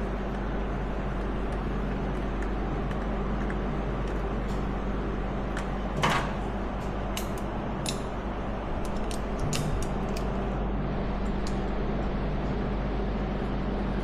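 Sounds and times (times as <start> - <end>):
low mechanical hum: 0.0 - 14.0
tools clicking and tapping: 7.2 - 8.1.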